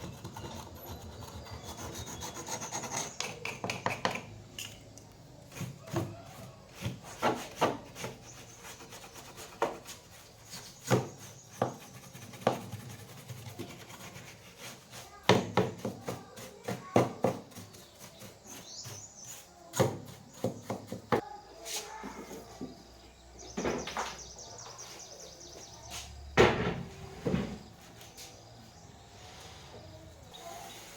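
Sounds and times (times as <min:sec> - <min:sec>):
rubbing: 0:06.9 - 0:15.1.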